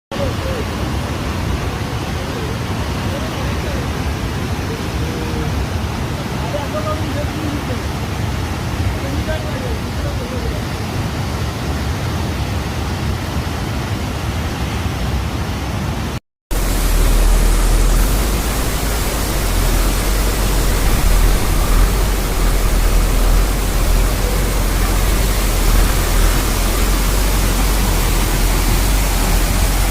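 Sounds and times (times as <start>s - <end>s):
steady rushing noise: 11.9s - 29.9s
deep rumble: 16.5s - 29.9s.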